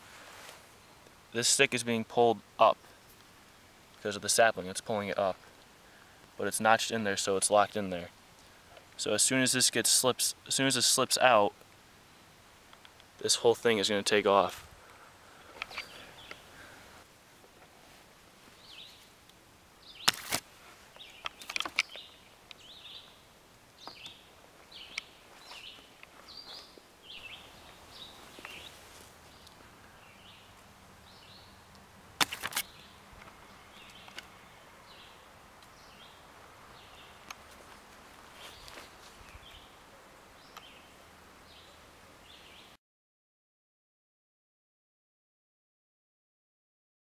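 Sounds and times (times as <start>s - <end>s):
birds chirping: 13.2s - 16.9s, 18.5s - 19.2s, 19.8s - 20.2s, 20.9s - 42.8s.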